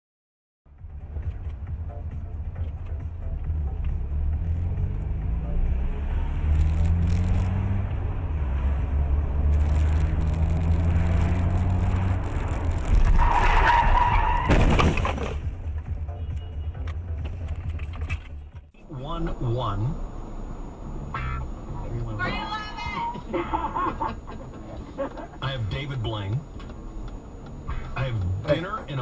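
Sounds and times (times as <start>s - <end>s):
car engine accelerating: 0.7s - 14.4s
tyres squealing: 12.9s - 15.2s.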